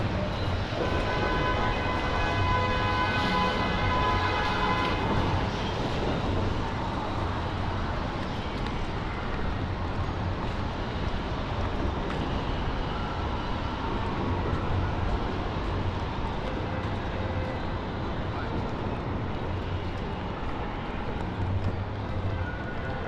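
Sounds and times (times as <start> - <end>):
rain on wet street: 0.3 - 23.0.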